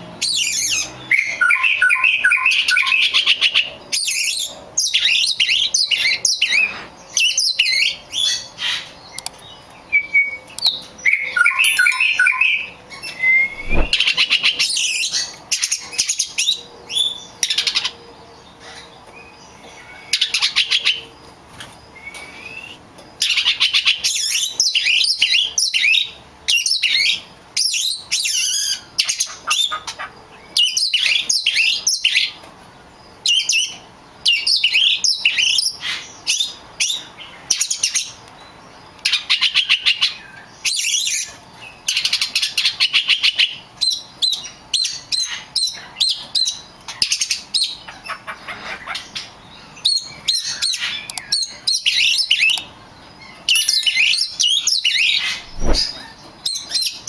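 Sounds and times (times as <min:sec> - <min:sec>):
bird singing whistled phrases: 0:11.1 - 0:14.1, 0:22.0 - 0:22.8.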